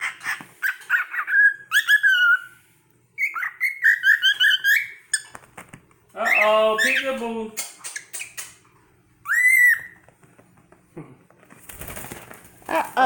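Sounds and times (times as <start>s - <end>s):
cockatiel whistling chirpy phrases: 6.2s - 7.7s, 9.2s - 10.0s.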